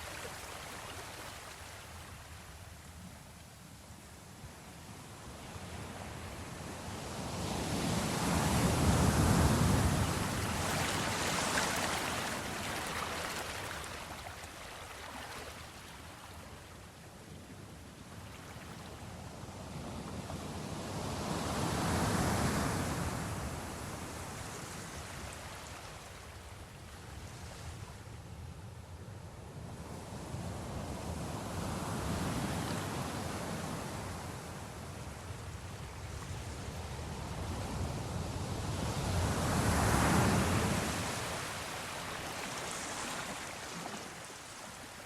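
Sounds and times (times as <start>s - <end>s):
sea waves washing in: 7.2s - 16.4s, 35.9s - 45.0s.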